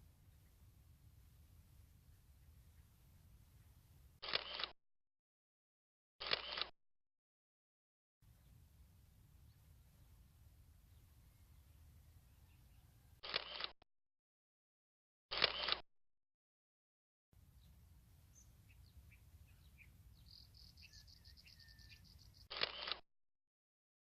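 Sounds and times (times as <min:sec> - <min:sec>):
faint birdsong: 0:00.0 - 0:04.6, 0:08.2 - 0:13.7, 0:17.4 - 0:23.0
camera shutter bursts: 0:04.2 - 0:04.8, 0:06.2 - 0:06.7, 0:13.2 - 0:13.8, 0:15.3 - 0:15.8, 0:21.6 - 0:23.0.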